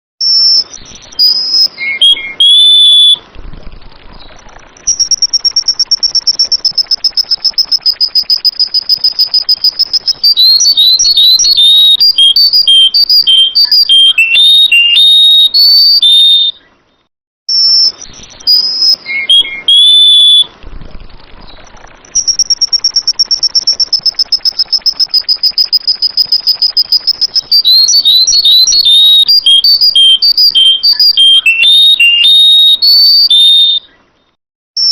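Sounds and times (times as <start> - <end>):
bulbul singing whistled phrases: 0.2 - 16.8, 17.5 - 34.9
rapid high bird trill: 4.2 - 16.6, 21.4 - 34.1.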